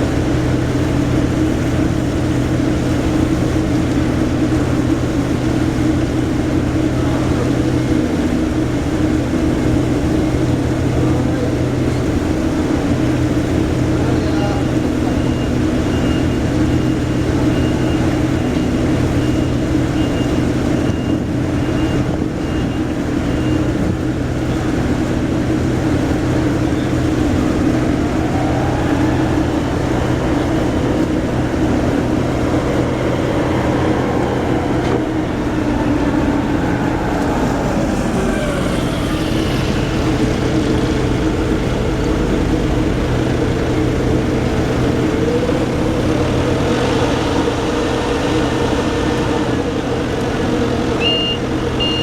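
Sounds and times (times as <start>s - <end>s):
machinery running with deep hum: 0.0s - 52.0s
faint rising and falling tone: 26.0s - 51.4s.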